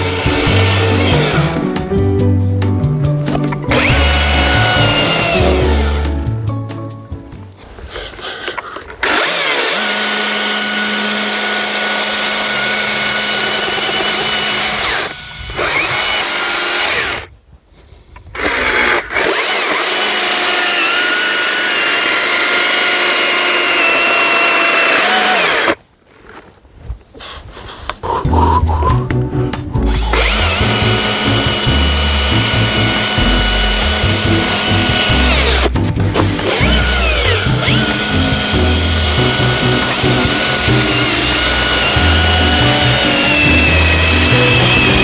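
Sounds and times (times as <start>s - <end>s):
electric chainsaw cutting wood: 0.0s - 1.7s, 3.7s - 6.2s, 8.4s - 17.3s, 18.4s - 25.8s, 29.9s - 45.0s.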